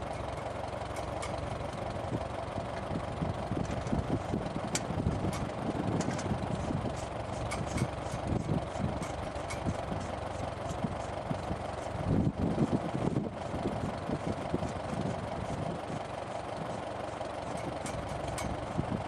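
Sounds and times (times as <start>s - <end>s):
engine running: 0.0s - 19.0s
light clicks and rattles: 0.1s - 1.9s, 3.6s - 11.9s, 16.7s - 19.0s.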